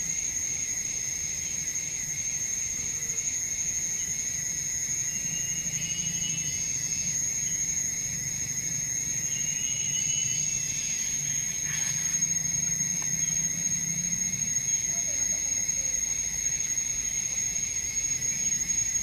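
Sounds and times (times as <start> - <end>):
lower insect trill: 0.0 - 19.0
high-pitched insect tone: 0.1 - 19.0.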